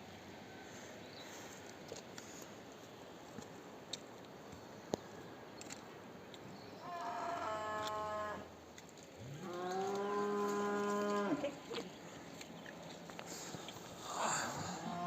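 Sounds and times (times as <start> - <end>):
cattle mooing: 9.3 - 11.6, 14.6 - 15.0.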